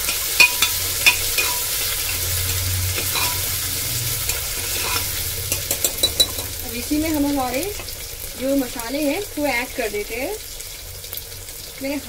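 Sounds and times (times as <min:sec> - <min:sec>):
ladle clinking against pot: 0:00.0 - 0:03.5, 0:04.3 - 0:06.6
vegetables sizzling in oil: 0:00.0 - 0:12.0.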